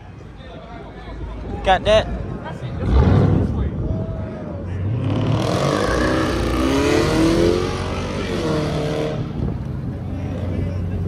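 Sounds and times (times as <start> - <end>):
car engine revving: 4.8 - 9.5.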